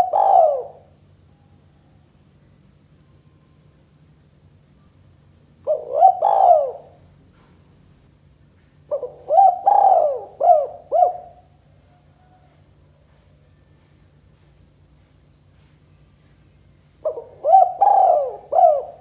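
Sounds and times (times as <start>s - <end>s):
dove cooing: 0.0s - 0.9s, 5.6s - 7.5s, 8.9s - 11.4s, 17.0s - 19.0s.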